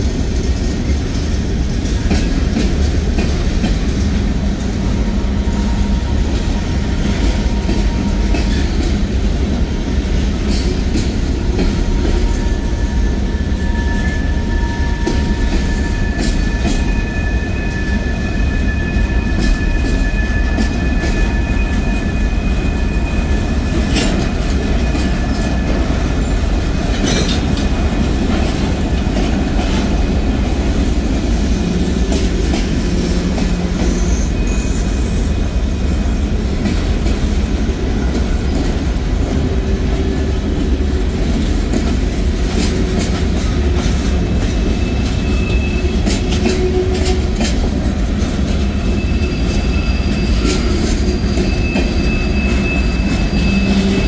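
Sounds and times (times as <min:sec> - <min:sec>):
freight train cars rolling: 0:00.0 - 0:54.0
high wheel squeal: 0:11.9 - 0:26.4, 0:32.7 - 0:35.6, 0:44.6 - 0:47.2, 0:48.6 - 0:54.0.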